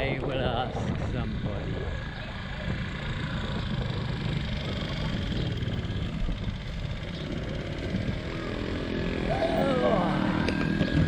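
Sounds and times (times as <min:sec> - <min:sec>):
road noise: 0:00.0 - 0:11.0
wind buffeting microphone: 0:00.0 - 0:11.0.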